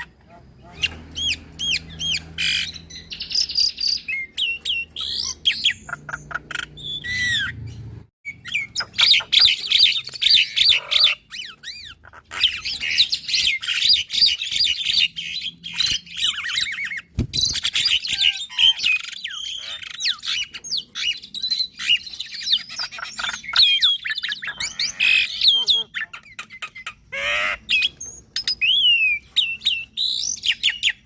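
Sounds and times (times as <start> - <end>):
mynas chattering and whistling: 21.5 - 31.0.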